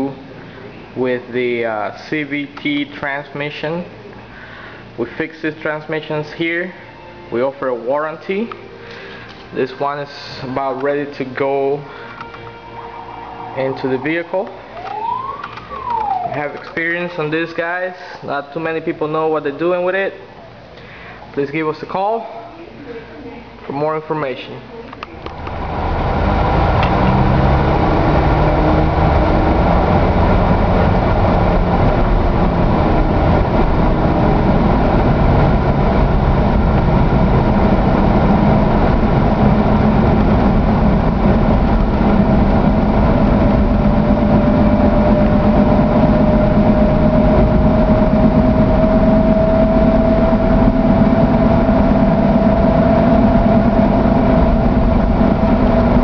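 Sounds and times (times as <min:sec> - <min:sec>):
faint rising whine: 0:00.0 - 0:21.1, 0:25.1 - 0:56.0
engine idling: 0:25.1 - 0:56.0.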